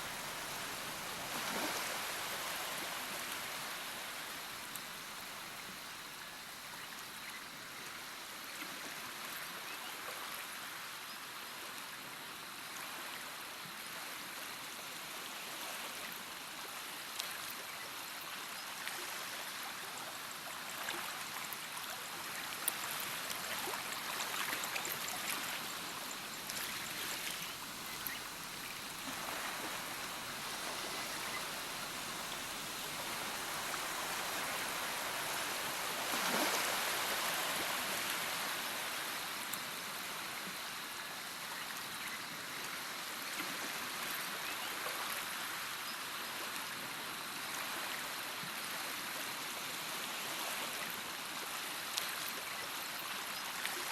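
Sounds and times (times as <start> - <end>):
running water: 0.0 - 7.2, 20.8 - 41.6
water splashes and trickles: 0.0 - 11.0, 15.2 - 53.9.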